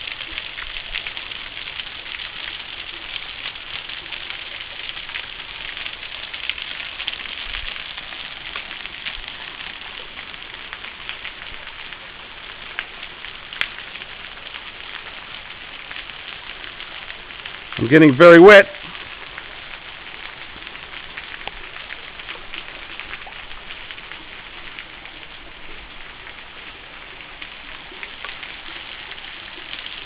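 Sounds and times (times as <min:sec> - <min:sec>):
waterfall splashing onto rock: 0:00.0 - 0:30.0.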